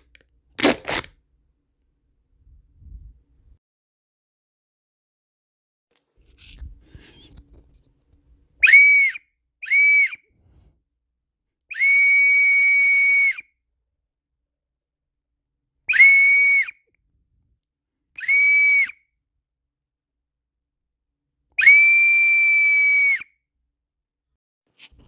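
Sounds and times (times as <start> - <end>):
toy whistle toots: 8.6 - 10.3, 11.7 - 13.5, 15.9 - 16.8, 18.2 - 19.1, 21.6 - 23.3.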